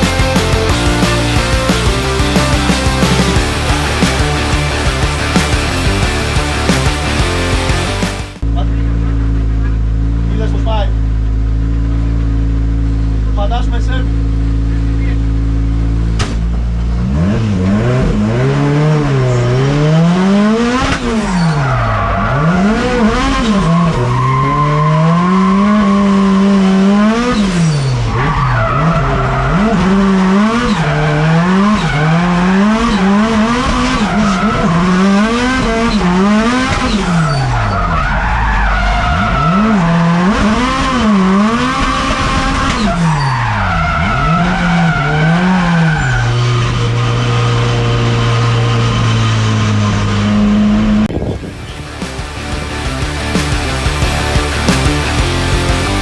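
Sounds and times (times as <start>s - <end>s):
car engine revving hard: 0.0s - 8.4s, 15.4s - 56.0s
tyres squealing and skidding: 18.8s - 50.6s.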